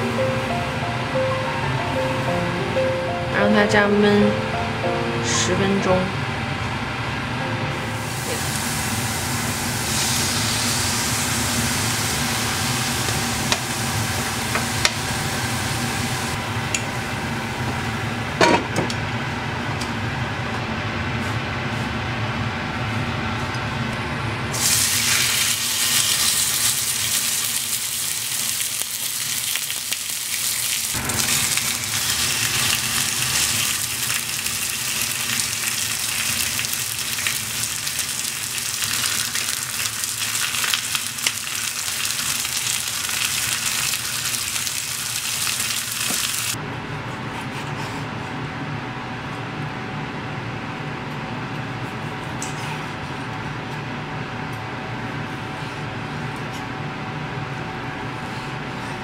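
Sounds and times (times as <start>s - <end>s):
food sizzling in a hot pan: 8.0s - 16.4s, 24.6s - 46.6s.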